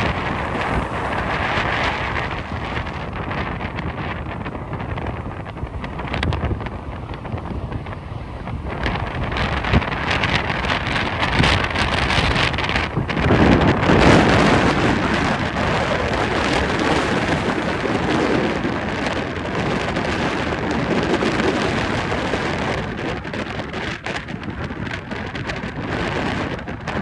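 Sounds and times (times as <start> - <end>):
jet airliner landing roar: 0.0 - 27.0
strong wind on microphone: 0.0 - 27.0.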